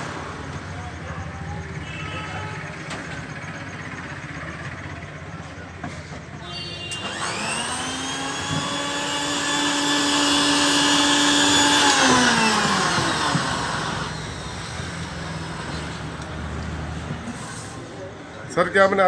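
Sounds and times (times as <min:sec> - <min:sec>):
blender motor whining: 0:06.9 - 0:16.7
blender spinning down: 0:06.9 - 0:16.7.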